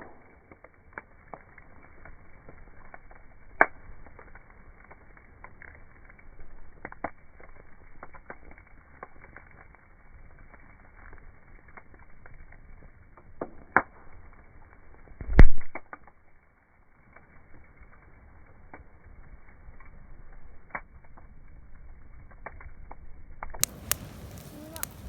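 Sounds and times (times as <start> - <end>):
campfire wood crackling: 0.0 - 25.0.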